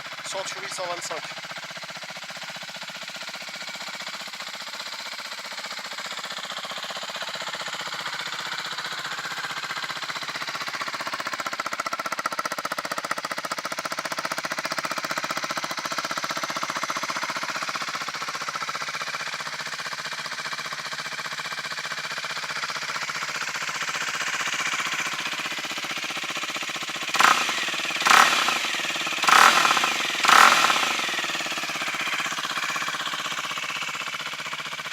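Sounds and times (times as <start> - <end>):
motorcycle engine idling: 0.0 - 34.9
engine revving: 26.9 - 34.9.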